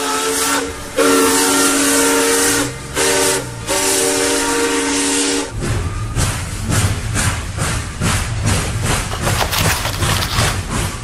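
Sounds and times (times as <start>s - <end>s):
steam locomotive chime whistle: 0.0s - 7.0s.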